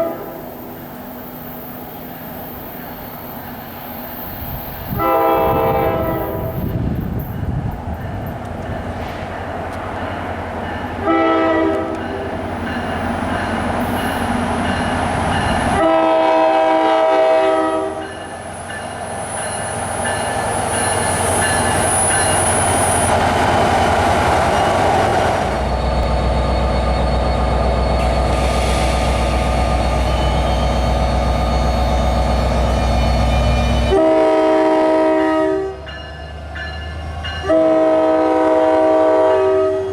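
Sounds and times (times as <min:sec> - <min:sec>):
locomotive air horn blasts: 0:00.0 - 0:00.5, 0:04.9 - 0:06.7, 0:11.0 - 0:12.0, 0:15.8 - 0:18.0, 0:32.8 - 0:35.8, 0:37.4 - 0:39.9
train running: 0:00.0 - 0:39.9.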